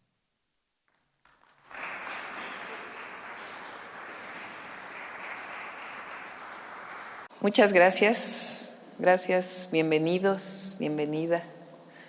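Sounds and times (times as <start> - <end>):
audience applauding: 0.9 - 7.3.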